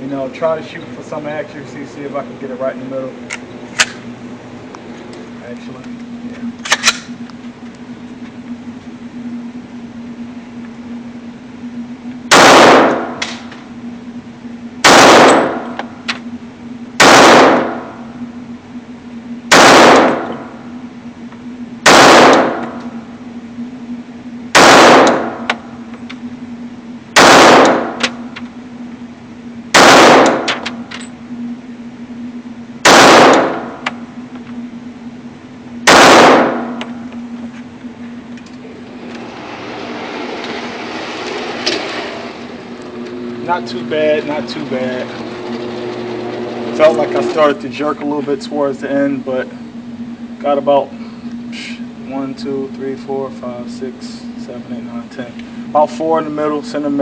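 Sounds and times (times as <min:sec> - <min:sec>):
pistol shots: 0:12.3 - 0:13.4, 0:14.8 - 0:15.8, 0:17.0 - 0:17.9, 0:19.5 - 0:20.5, 0:21.8 - 0:22.8, 0:24.5 - 0:25.6, 0:27.2 - 0:28.2, 0:29.7 - 0:30.8, 0:32.8 - 0:33.8, 0:35.8 - 0:36.8.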